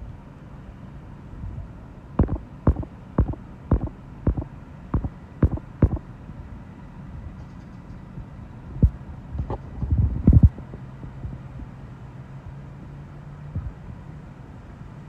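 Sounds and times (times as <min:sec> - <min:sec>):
steady low hum: 0:01.6 - 0:06.4.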